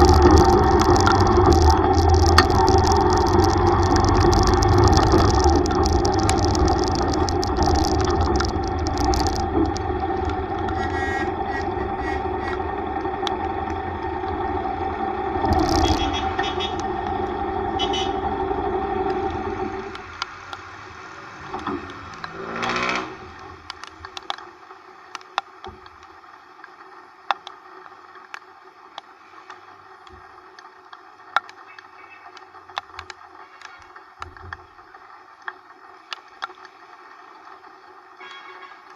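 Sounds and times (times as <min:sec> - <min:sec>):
sharp ticks: 0:00.0 - 0:20.7, 0:21.4 - 0:24.5
motorcycle engine running: 0:00.0 - 0:20.8, 0:21.4 - 0:23.7
short falling whine: 0:00.0 - 0:23.8.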